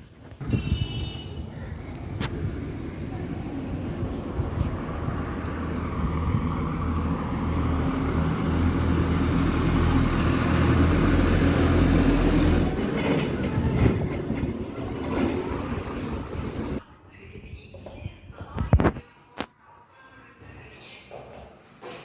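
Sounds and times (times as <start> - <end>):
low mechanical rumble with hum: 2.0 - 7.8.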